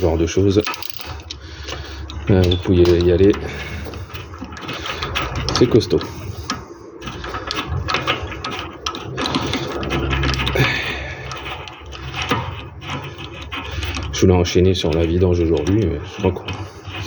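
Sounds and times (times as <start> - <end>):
metal tools clinking: 0.0 - 6.2
ratchet wrench clicking: 0.6 - 3.1.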